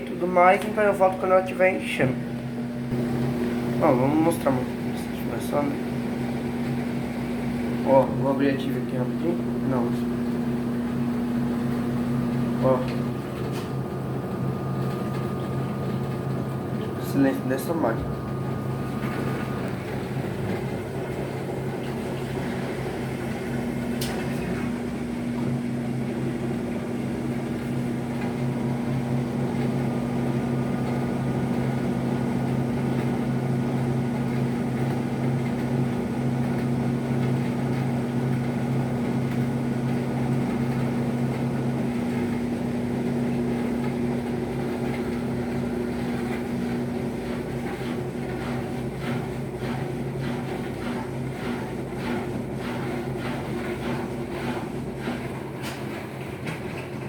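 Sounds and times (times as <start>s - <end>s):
washing machine motor hum: 0.0s - 57.0s.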